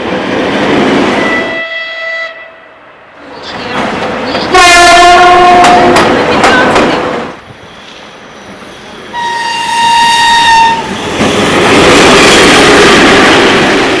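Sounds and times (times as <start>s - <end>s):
train passing close by: 0.0s - 14.0s
train horn: 1.2s - 2.7s, 4.5s - 6.1s, 9.1s - 10.9s.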